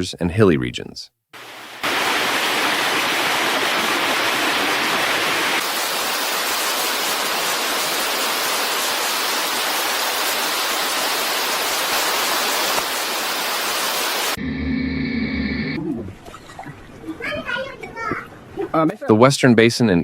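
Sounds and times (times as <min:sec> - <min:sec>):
loud rush of water: 0:01.4 - 0:14.4.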